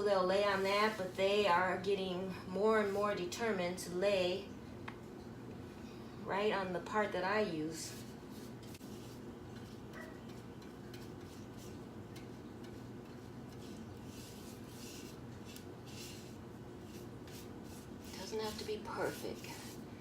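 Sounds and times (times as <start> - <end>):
steady low hum: 0.0 - 20.0
paintbrush swishes: 7.8 - 19.9.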